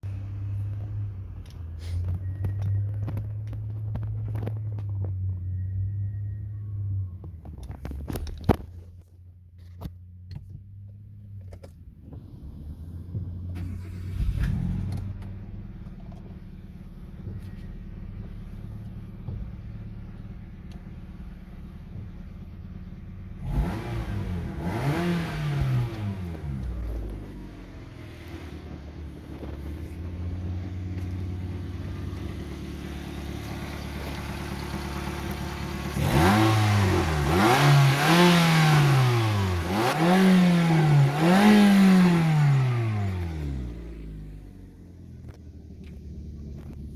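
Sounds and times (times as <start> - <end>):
car engine idling and revving: 0.0 - 46.9.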